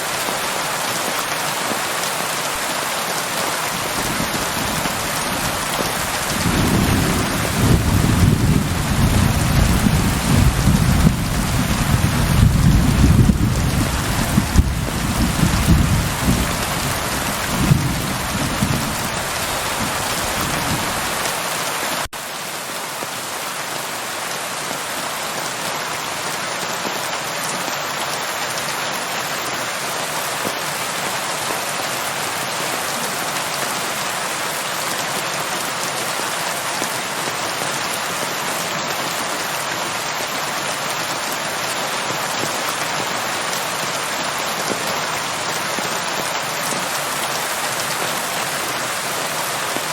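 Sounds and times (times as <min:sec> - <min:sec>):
steady rain falling: 0:00.0 - 0:49.9
low thunder rumble: 0:04.1 - 0:21.0.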